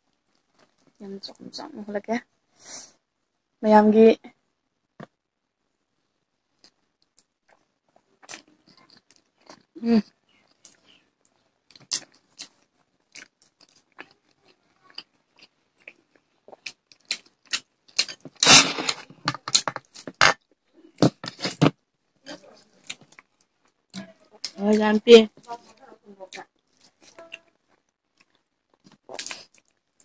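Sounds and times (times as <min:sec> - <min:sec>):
wet chewing and lip-smacking: 0:06.6 - 0:18.3, 0:26.3 - 0:30.0.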